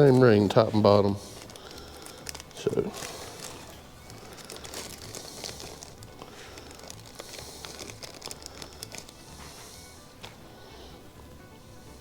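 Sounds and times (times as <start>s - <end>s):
packaging crinkling: 0.0s - 9.6s
quiet background music: 0.0s - 12.0s.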